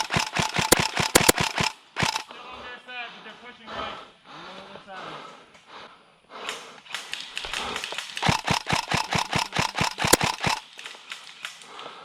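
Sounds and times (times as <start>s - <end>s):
airsoft gun firing rapidly: 0.0s - 2.3s, 7.0s - 11.3s.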